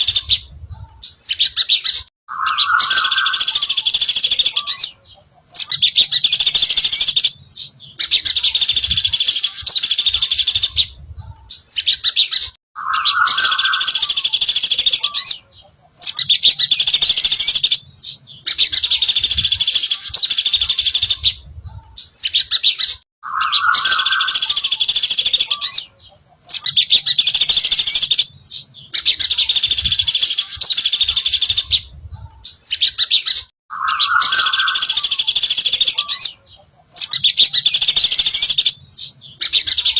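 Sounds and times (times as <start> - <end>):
songbird singing trilled phrases: 0.0 - 39.9.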